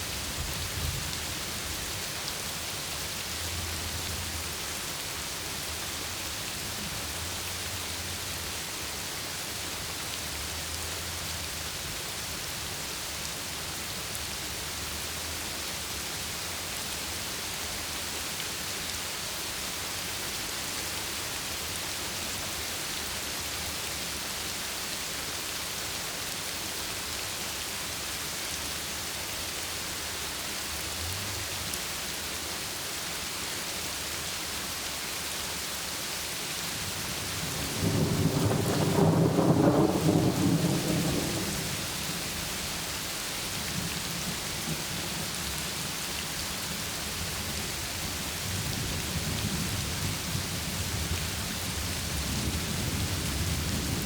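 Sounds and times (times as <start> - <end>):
heavy rain pounding: 0.0 - 9.0, 36.7 - 54.0.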